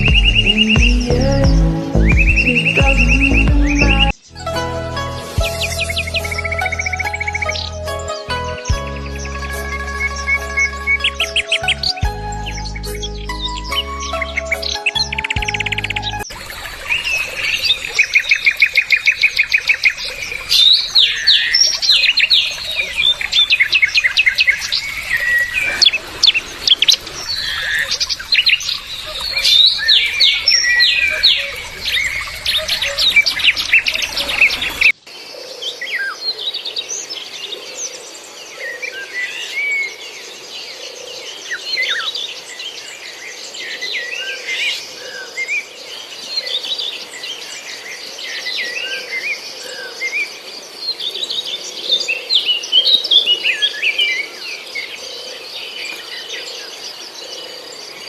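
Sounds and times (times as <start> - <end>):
small birds chirping and trilling: 5.4 - 58.0.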